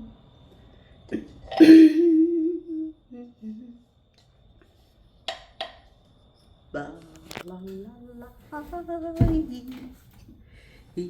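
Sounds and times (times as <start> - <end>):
woman humming: 1.1 - 3.8.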